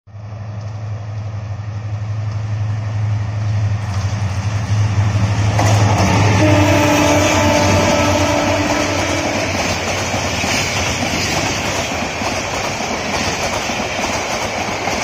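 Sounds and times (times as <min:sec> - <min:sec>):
locomotive engine hum: 0:00.1 - 0:15.0
rush of passing train: 0:00.1 - 0:15.0
steady higher tone: 0:01.4 - 0:10.3.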